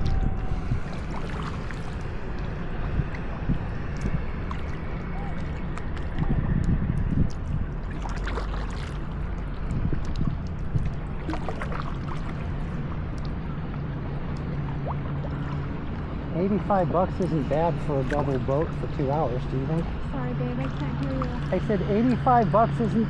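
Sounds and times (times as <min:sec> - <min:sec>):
paddles splashing in water: 0:00.0 - 0:20.0
steady low rumble: 0:00.0 - 0:23.0.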